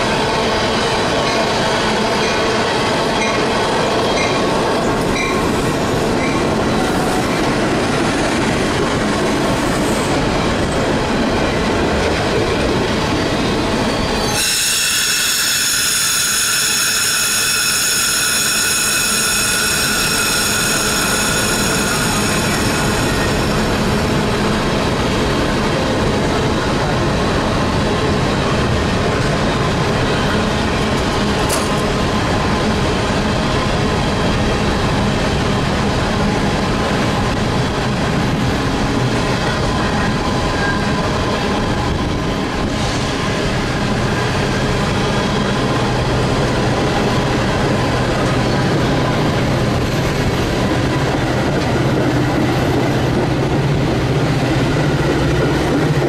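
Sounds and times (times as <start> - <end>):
freight train wheels rumbling: 0.0 - 56.0
train brakes squealing: 13.1 - 24.2.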